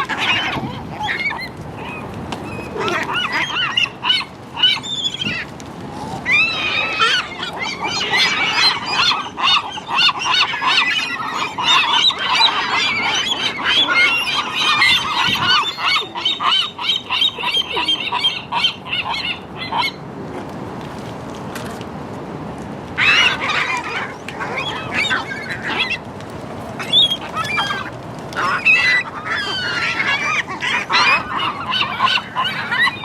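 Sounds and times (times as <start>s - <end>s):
seagulls squawking: 0.0s - 5.5s, 6.2s - 20.0s, 23.0s - 26.1s, 26.8s - 33.0s.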